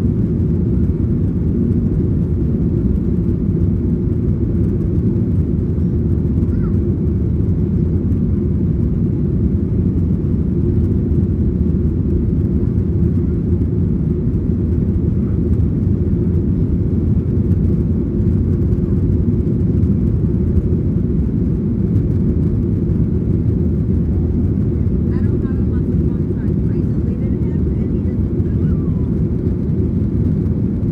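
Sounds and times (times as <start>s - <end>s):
jet engines and airflow rumble: 0.0s - 30.9s.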